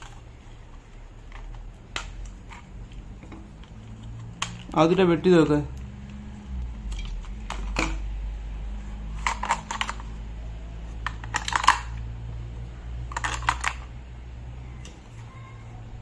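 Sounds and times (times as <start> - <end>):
sharp clicks and crackles: 0.0 - 5.1
steady low hum: 5.4 - 16.0.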